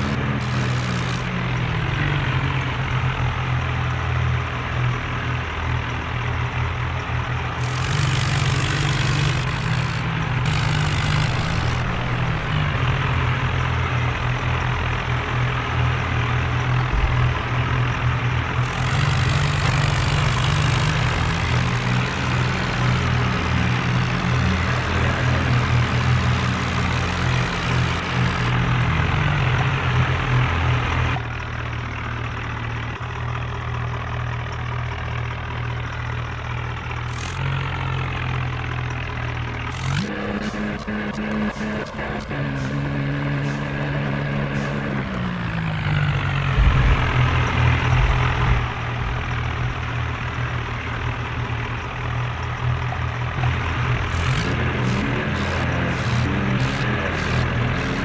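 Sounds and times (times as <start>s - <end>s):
tractor engine droning: 0.0s - 58.0s.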